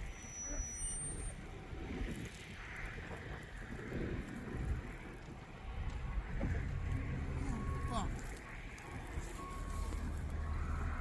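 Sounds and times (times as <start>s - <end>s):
wind buffeting microphone: 1.2s - 11.0s.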